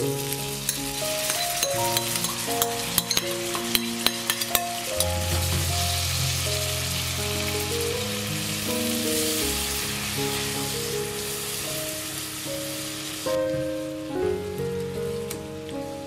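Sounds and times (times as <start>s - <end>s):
chicken sizzling in a pan: 0.0s - 15.8s
soft background music: 0.0s - 16.0s
spoon clinking on glass bowl: 0.7s - 5.5s.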